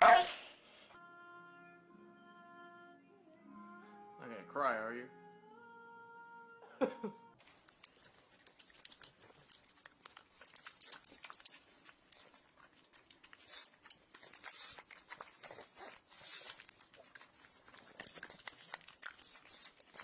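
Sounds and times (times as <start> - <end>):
dog whining: 0.0 - 0.4.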